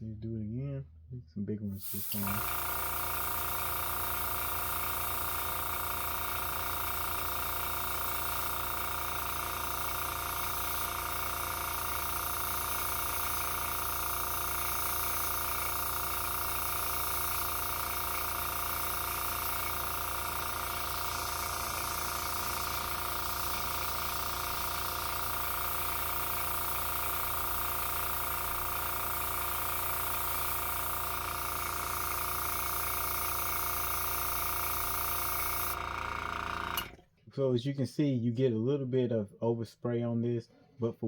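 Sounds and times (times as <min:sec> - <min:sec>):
compressor humming: 0:01.7 - 0:37.0
airbrush air hiss: 0:01.8 - 0:35.8.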